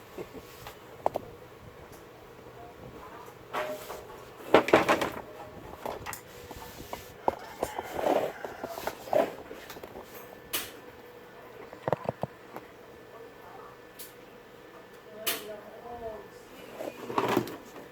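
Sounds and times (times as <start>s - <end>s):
plastic cabinet and tools set down: 3.6s - 5.2s.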